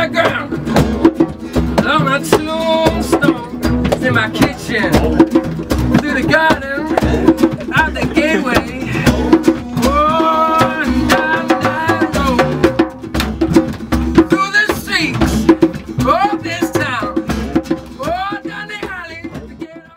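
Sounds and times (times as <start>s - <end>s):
sharp percussion hits: 0.0s - 19.7s
acoustic instruments: 0.0s - 19.9s
person singing long notes: 6.1s - 12.7s.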